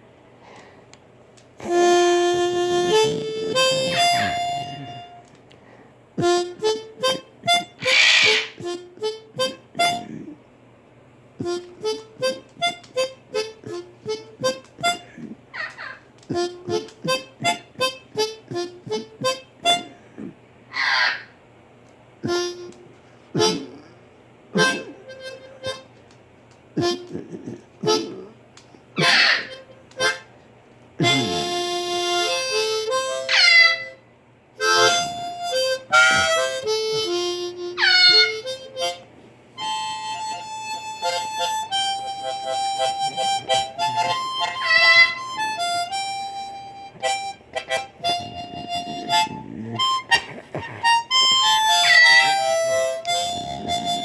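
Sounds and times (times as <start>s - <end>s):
blues harmonica: 1.6s - 5.3s, 6.2s - 10.3s, 11.4s - 20.4s, 22.2s - 23.9s, 24.6s - 26.1s, 26.8s - 30.3s, 31.0s - 34.0s, 34.6s - 54.0s
parrot squawks: 7.8s - 8.6s, 15.6s - 16.0s, 20.7s - 21.4s, 29.0s - 29.6s, 33.1s - 34.0s, 37.8s - 38.5s, 44.4s - 45.5s, 51.4s - 52.7s.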